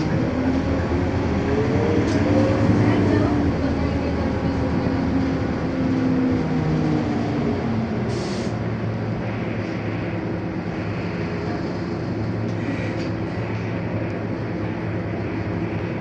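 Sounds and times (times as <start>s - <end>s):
bus diesel engine running: 0.0s - 16.0s
short hiss: 8.1s - 8.6s.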